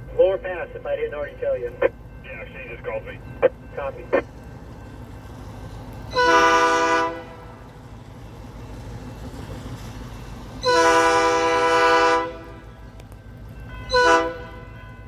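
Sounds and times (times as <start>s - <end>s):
locomotive air horn blasts: 6.1s - 7.6s, 10.6s - 12.7s, 13.9s - 14.7s.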